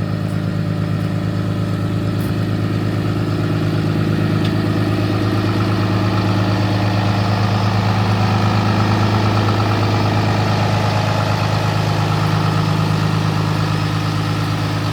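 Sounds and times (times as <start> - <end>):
diesel truck engine idling: 0.0 - 14.9.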